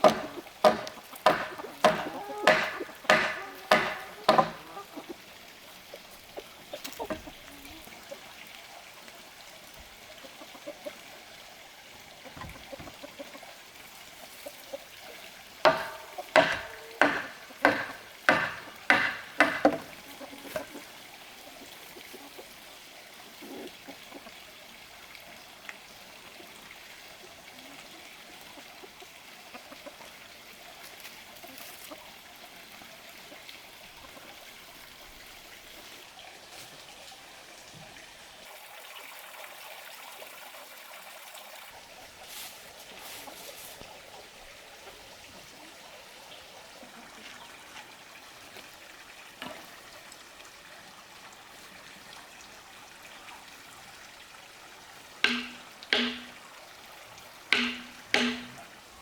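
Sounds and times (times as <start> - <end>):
trickle of running water: 0.0 - 59.0
sharp knocks with short ring: 0.1 - 4.6, 55.2 - 56.4, 57.5 - 58.6.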